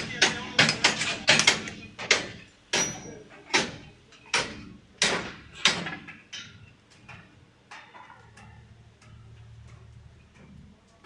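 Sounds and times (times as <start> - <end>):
hammering blows: 0.0 - 7.3.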